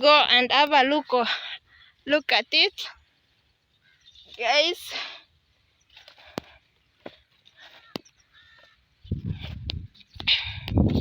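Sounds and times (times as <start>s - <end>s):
faint bird calls: 1.0s - 9.1s.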